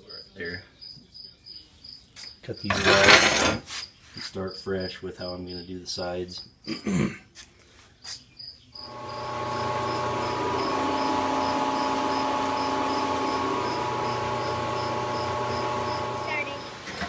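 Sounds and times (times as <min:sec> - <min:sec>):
angle grinder cutting steel: 0:02.7 - 0:03.6, 0:08.9 - 0:17.0.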